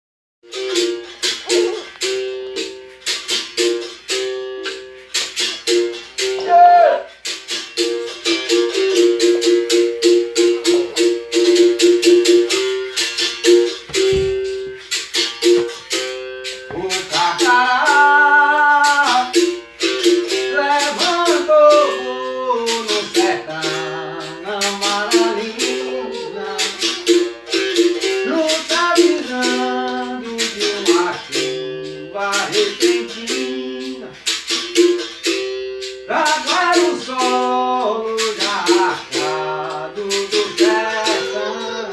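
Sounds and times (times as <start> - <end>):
berimbau struck in rhythm: 0.4 - 41.9
person singing: 6.2 - 7.2, 16.7 - 35.0, 36.1 - 41.9.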